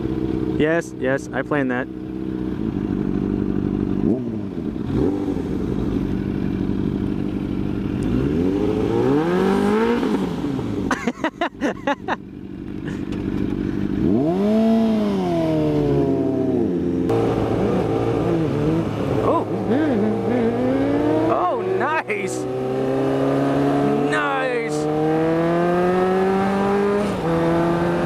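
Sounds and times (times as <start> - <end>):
motorcycle engines idling: 0.0 - 8.6, 10.3 - 22.7.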